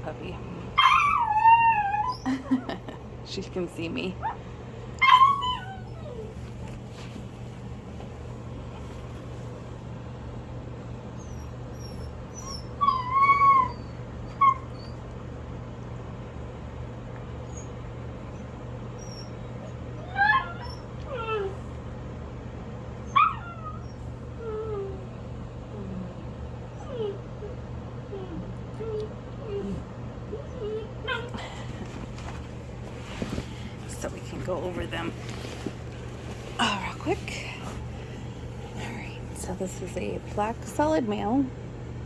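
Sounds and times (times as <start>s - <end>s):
steady low hum: 0.0s - 42.0s
puppies whimpering and squeaking: 0.8s - 2.8s, 5.0s - 6.9s, 11.2s - 15.1s, 18.9s - 21.6s, 23.1s - 25.0s, 26.7s - 31.5s, 33.1s - 39.2s.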